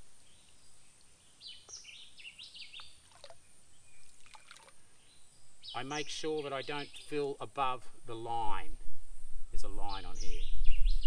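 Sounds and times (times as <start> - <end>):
faint outdoor ambience: 0.0 - 11.0
cup dipping into water: 2.8 - 3.4, 4.0 - 4.8.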